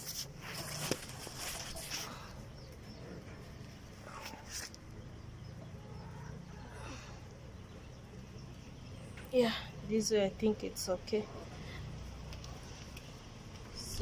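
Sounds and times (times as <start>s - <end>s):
rustling and scraping: 0.0s - 4.9s
chickens clucking: 0.6s - 4.4s.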